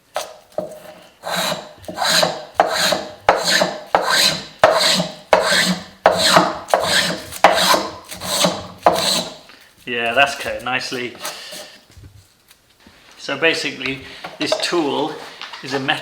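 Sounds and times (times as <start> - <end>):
hand plane shaving wood: 0.2 - 9.4.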